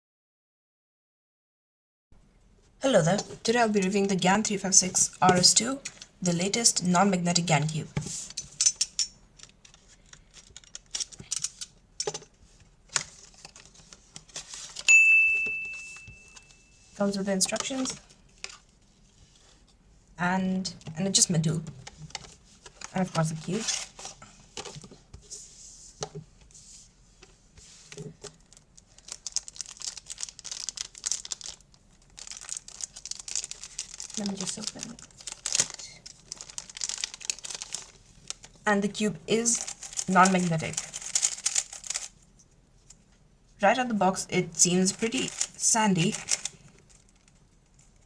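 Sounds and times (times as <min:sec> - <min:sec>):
packaging being handled: 0:08.0 - 0:14.9, 0:21.8 - 0:25.5, 0:26.6 - 0:43.0, 0:44.8 - 0:48.0.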